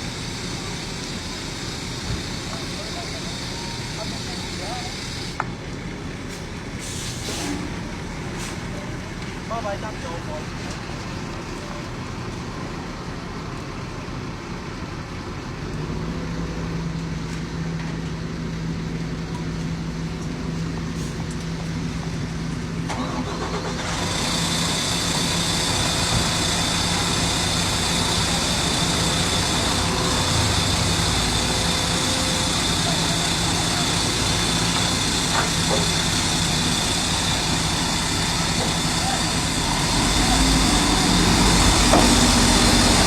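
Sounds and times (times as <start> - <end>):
heavy equipment diesel engines: 0.0 - 43.0
loud hiss: 23.0 - 43.0.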